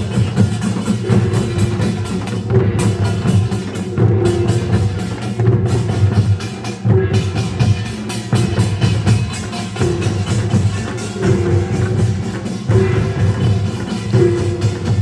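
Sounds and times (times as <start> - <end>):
drums: 0.0 - 15.0.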